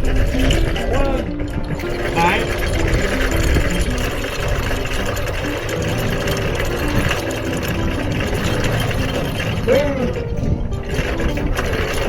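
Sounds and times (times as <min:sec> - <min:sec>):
anchor chain paying out: 0:00.0 - 0:12.0
boat engines idling: 0:00.0 - 0:12.0
electric anchor windlass running: 0:00.0 - 0:12.0.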